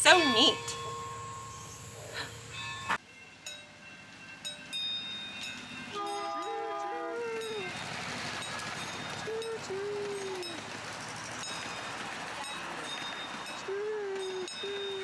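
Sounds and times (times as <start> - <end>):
train horn two-note tone: 5.9 - 7.7.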